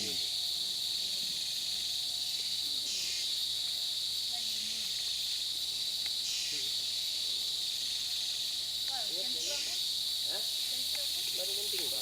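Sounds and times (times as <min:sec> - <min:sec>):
insects buzzing chorus: 0:00.0 - 0:12.0.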